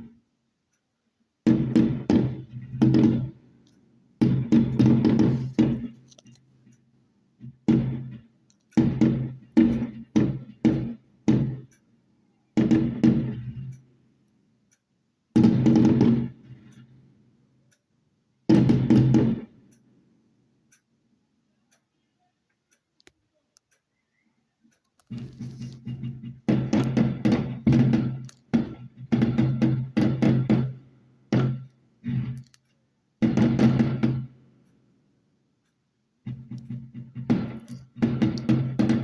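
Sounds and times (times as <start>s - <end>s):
fireworks bangs: 1.5s - 3.5s, 4.2s - 6.1s, 7.4s - 11.6s, 12.6s - 13.7s, 15.4s - 16.8s, 25.1s - 32.5s, 33.2s - 34.4s, 36.3s - 39.0s.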